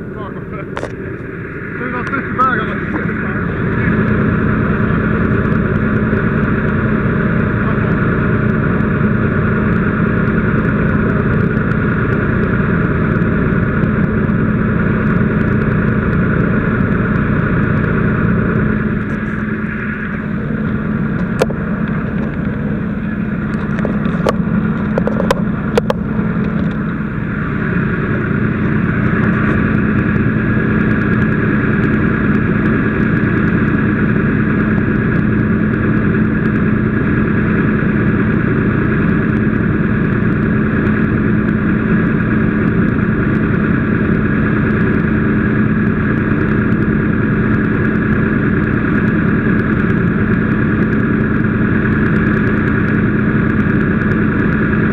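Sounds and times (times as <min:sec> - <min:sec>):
engine humming: 0:00.0 - 0:54.9.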